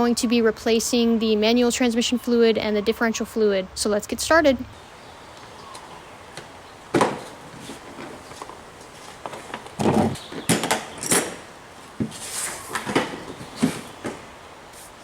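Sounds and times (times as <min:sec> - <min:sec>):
objects knocking and clunking: 0:06.3 - 0:14.4.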